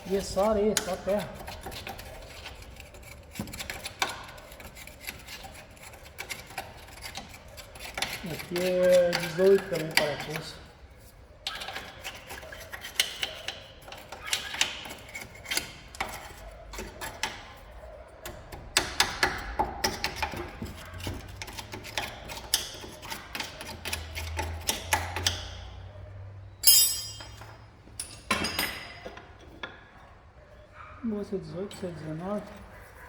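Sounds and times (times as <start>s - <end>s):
sharp metallic clatter: 26.6s - 29.0s
metal hand tools clinking: 26.6s - 29.2s.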